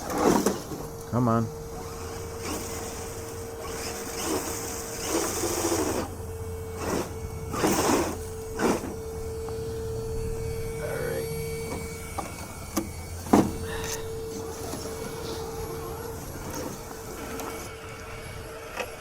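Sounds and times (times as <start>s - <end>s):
scrabbling bursts: 0.0s - 6.1s, 6.7s - 9.0s
toy truck electric motor whining: 0.0s - 19.0s.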